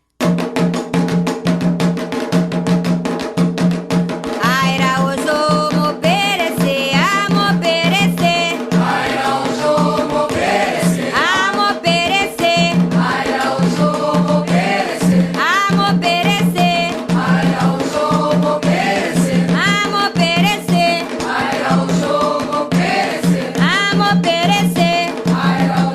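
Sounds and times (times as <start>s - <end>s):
drums and percussion: 0.0s - 25.9s
group singing a chant: 7.4s - 25.9s.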